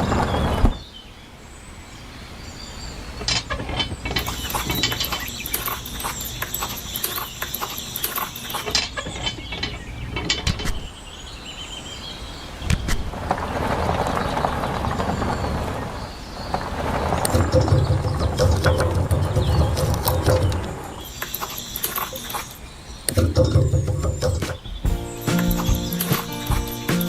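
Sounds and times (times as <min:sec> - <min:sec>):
small mechanism clicking and rattling: 0:03.2 - 0:10.7, 0:17.3 - 0:23.6.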